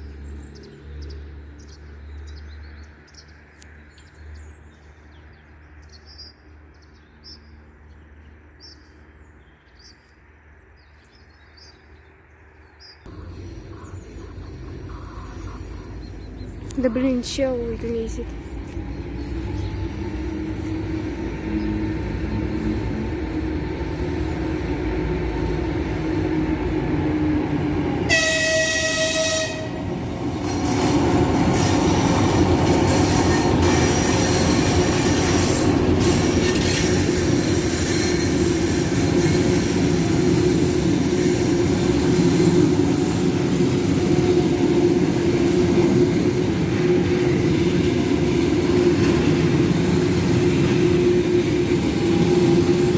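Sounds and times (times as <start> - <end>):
train rumbling: 0.0 - 52.9
train horn blast: 28.0 - 30.1, 50.4 - 52.9.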